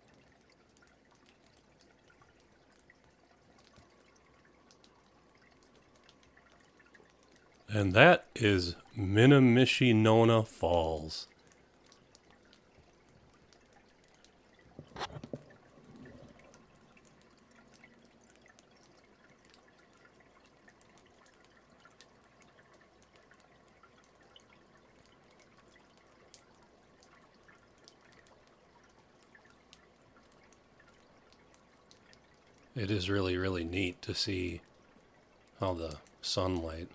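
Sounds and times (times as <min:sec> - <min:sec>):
faint ticks: 0:00.0 - 0:07.7, 0:11.2 - 0:32.8.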